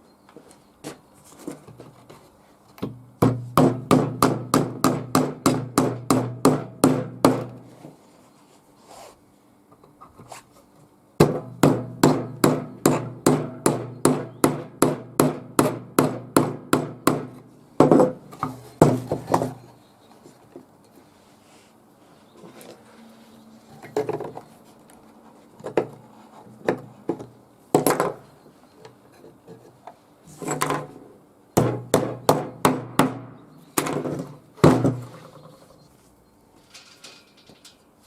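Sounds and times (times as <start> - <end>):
hammer striking wooden box: 2.8 - 7.6, 11.2 - 18.2, 31.6 - 35.1.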